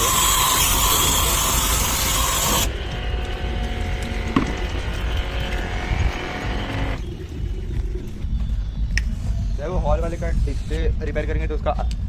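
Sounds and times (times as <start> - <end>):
machine hum: 0.0 - 9.0.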